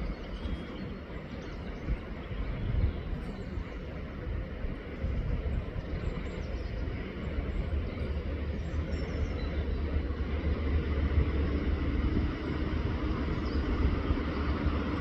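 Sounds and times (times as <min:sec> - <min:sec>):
low rumble: 0:03.8 - 0:15.0.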